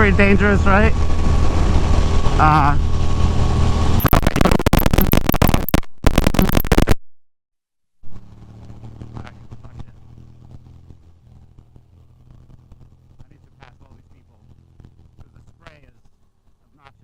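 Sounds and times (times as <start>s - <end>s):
motorcycle engine: 0.0s - 6.9s, 8.0s - 17.0s.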